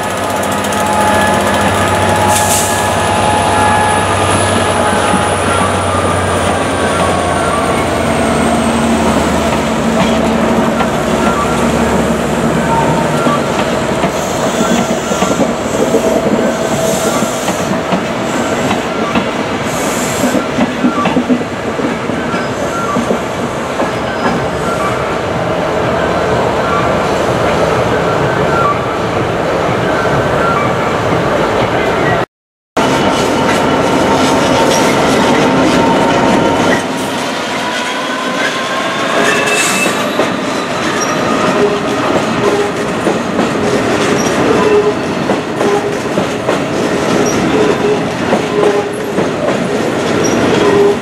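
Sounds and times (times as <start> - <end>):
diesel locomotive engine: 0.0 - 32.2, 32.8 - 51.0
high wheel squeals: 0.2 - 17.7, 34.1 - 42.8.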